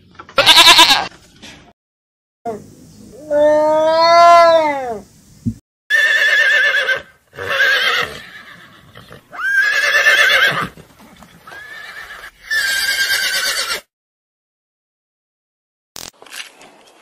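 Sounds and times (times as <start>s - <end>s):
horse whinnying: 0.4s - 1.1s, 5.9s - 13.9s.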